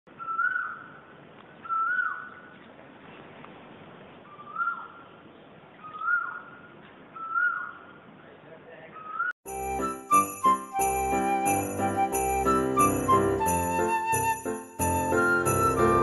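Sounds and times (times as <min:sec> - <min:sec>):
bird whistled call: 0:00.2 - 0:00.8.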